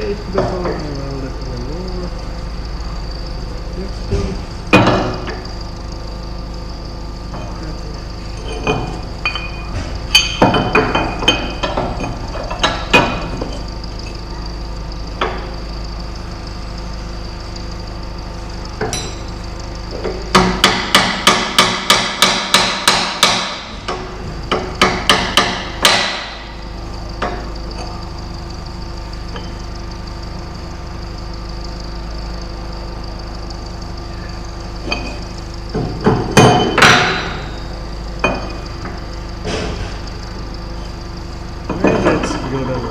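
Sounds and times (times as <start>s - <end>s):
steady background hum: 0.0s - 42.9s
hammer striking steel: 18.8s - 19.3s, 20.3s - 23.7s, 24.5s - 26.5s.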